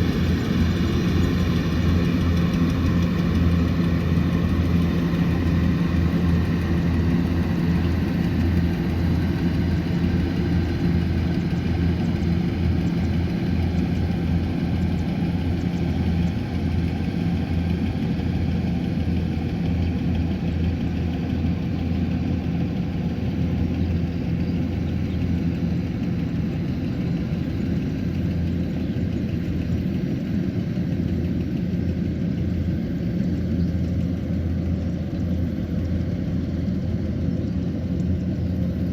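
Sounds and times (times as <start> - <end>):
combine harvester engine humming: 0.0 - 38.9
high-pitched engine whine: 0.0 - 38.9.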